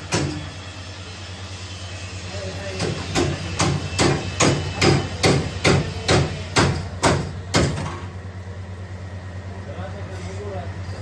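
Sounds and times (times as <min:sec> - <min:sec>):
hammer striking car body metal: 0:00.1 - 0:00.4, 0:02.8 - 0:08.1.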